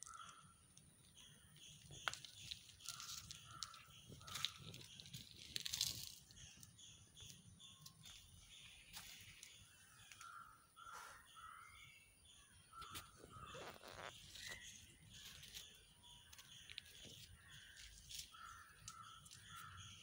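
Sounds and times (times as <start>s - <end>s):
faint birds calling: 0.0s - 20.0s
leaves rustling against phone: 1.8s - 6.6s, 12.8s - 19.8s.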